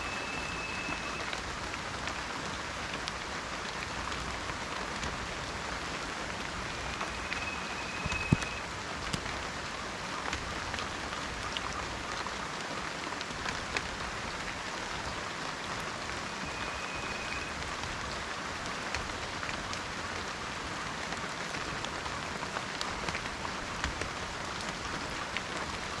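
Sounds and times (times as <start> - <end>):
thin high whistle: 0.0 - 1.4, 6.6 - 8.7, 16.2 - 17.6
rain falling on foliage: 0.0 - 26.0.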